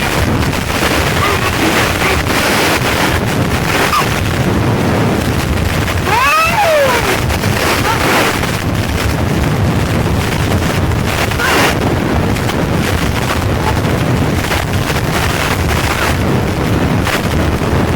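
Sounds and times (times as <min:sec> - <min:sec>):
wind buffeting microphone: 0:00.0 - 0:17.9
high rising and falling call: 0:06.1 - 0:07.2.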